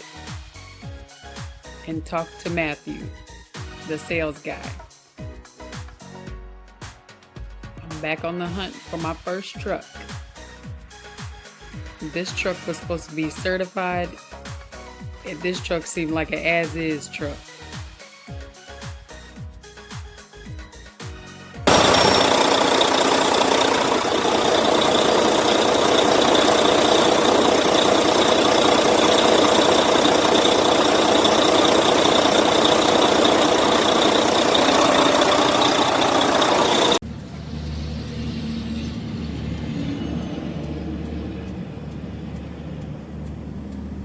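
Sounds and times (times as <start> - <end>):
diesel truck engine clattering: 21.7 - 44.0
low steady engine drone: 21.7 - 44.0.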